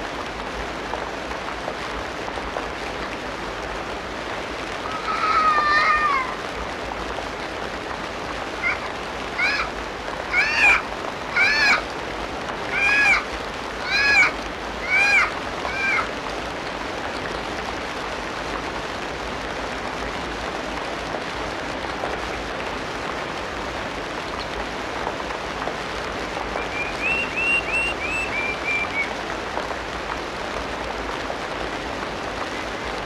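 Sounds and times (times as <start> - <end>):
background hiss: 0.0 - 33.0
animal call rising and falling: 4.8 - 6.4, 8.6 - 9.7, 10.3 - 11.8, 12.7 - 13.2, 13.8 - 16.1, 26.6 - 29.1.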